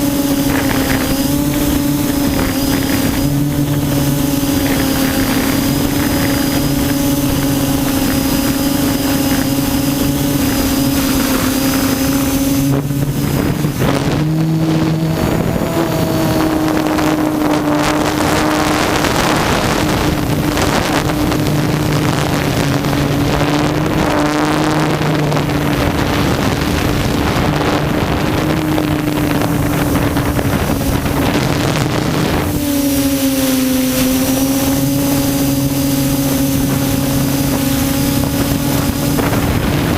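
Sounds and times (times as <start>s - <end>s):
drone motors humming: 0.0s - 39.9s
wind on microphone: 0.0s - 39.9s.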